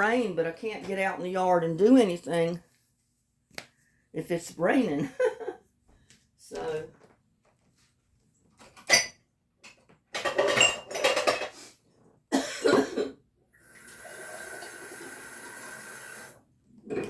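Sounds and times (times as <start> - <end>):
cups and dishes clinking: 10.2 - 11.6.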